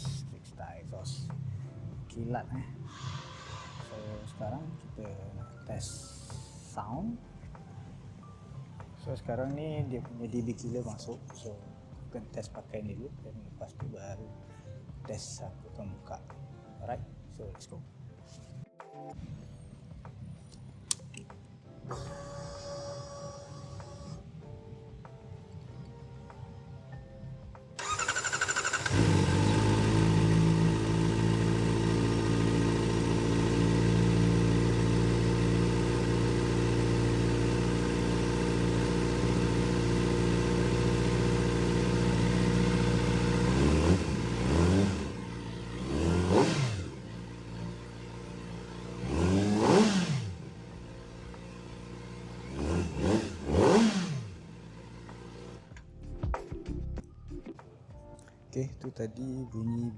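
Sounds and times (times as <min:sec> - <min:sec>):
motorcycle engine idling and revving: 0:00.0 - 0:00.4, 0:27.8 - 0:55.8.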